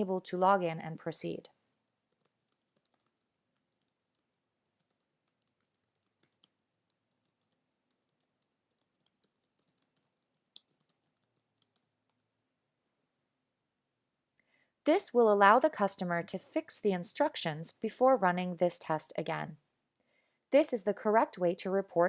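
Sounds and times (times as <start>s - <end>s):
typing on a keyboard: 2.1s - 12.2s.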